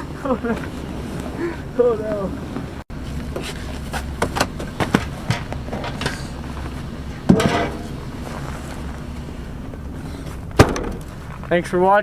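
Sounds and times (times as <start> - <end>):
steady low rumble: 0.0 - 12.0
sharp knocks and clatters: 4.2 - 6.4, 7.3 - 8.1, 10.4 - 11.5
heavy impact with ringing: 7.3 - 8.2, 10.5 - 11.2.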